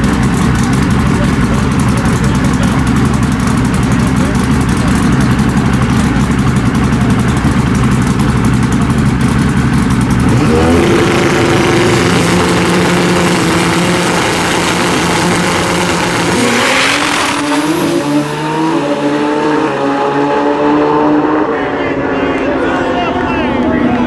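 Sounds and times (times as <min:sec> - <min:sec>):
drag bike engines revving: 0:00.0 - 0:24.0
loud rush of noise: 0:10.1 - 0:24.0.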